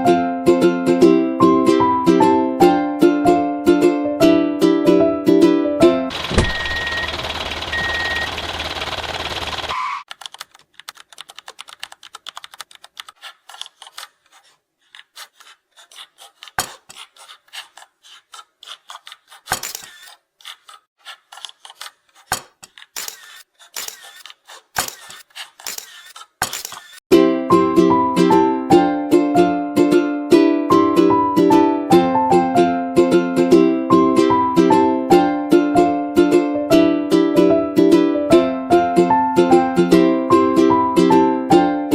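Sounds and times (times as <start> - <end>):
sharp click: 19.5 - 20.2, 22.3 - 27.0.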